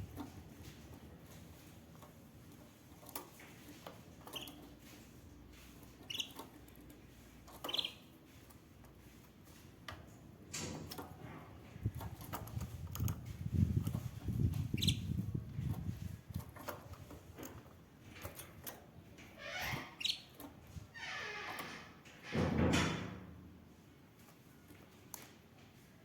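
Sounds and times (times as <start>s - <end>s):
canary chirps: 4.2s - 4.9s, 5.8s - 8.6s, 13.9s - 15.8s, 19.4s - 20.5s.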